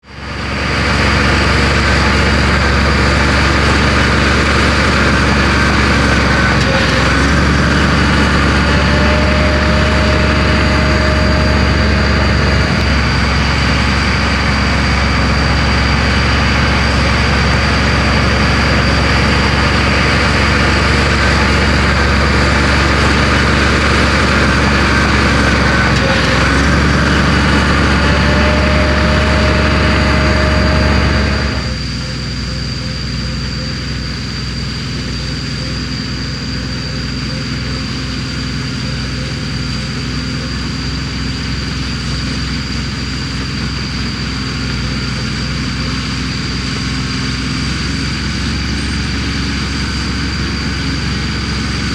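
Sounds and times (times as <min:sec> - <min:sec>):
constant high whine: 0:00.0 - 0:51.9
diesel engine under load: 0:00.0 - 0:51.9
short rising and falling whines: 0:00.1 - 0:51.9.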